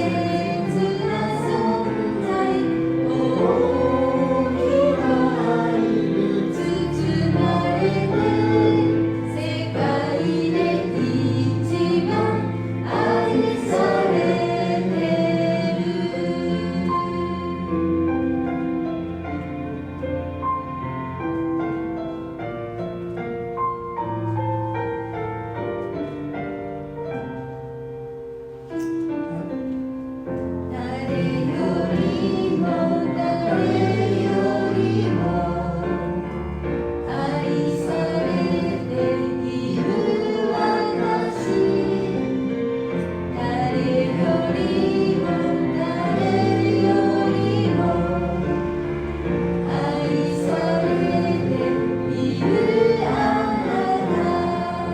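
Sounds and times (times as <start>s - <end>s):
voices singing praise song: 0.0s - 18.2s, 30.7s - 54.9s
keyboard accompaniment: 0.0s - 54.9s.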